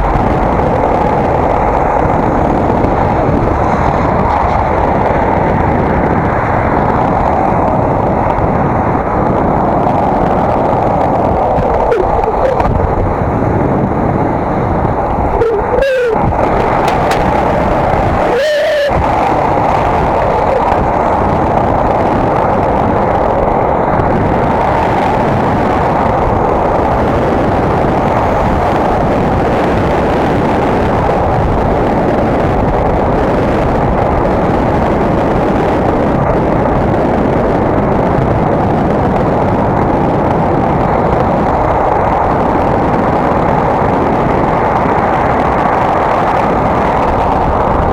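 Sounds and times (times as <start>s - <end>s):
wind rumble on microphone: 0.0s - 47.9s
short squeals: 15.3s - 17.1s.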